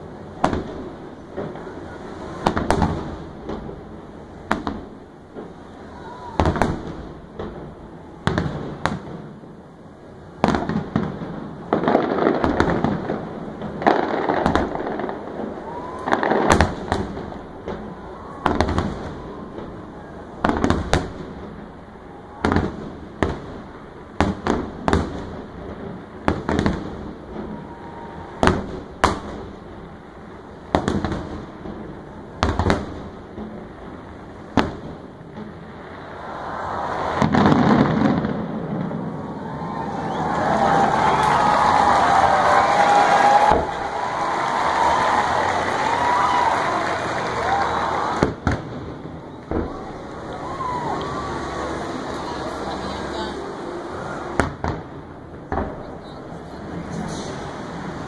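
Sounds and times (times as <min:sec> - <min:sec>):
fireworks bursting: 0:00.0 - 0:58.0
fireworks hissing: 0:10.4 - 0:58.0.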